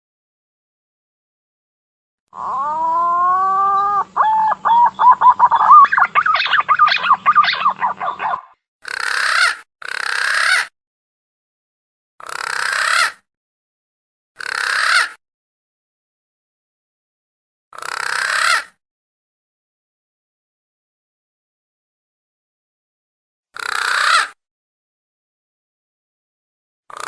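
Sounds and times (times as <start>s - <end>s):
bird call whistle lure: 2.5s - 8.5s.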